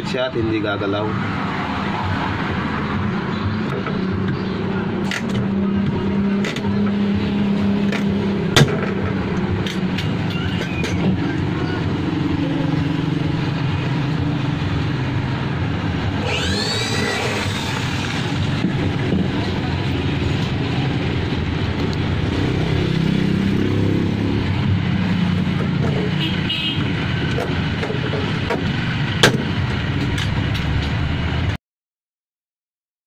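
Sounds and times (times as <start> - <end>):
engine-like drone: 0.0 - 31.6
brief squeal: 10.3 - 11.8.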